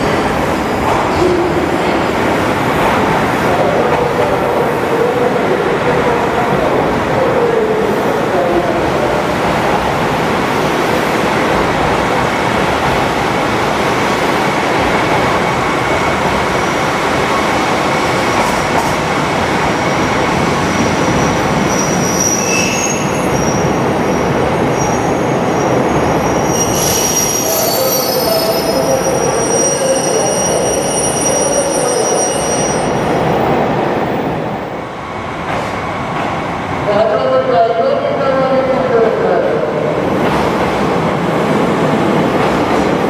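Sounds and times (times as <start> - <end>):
train rumbling on track: 0.0 - 43.0
train wheel squeals: 21.2 - 23.8, 26.2 - 32.9.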